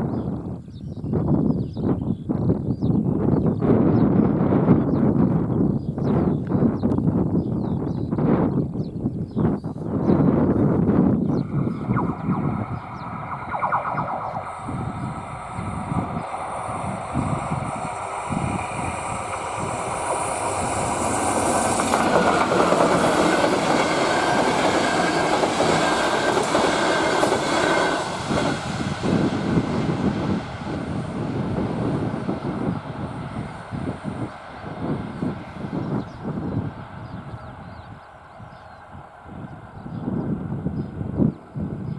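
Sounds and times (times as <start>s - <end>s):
passenger train passing: 10.7s - 41.8s.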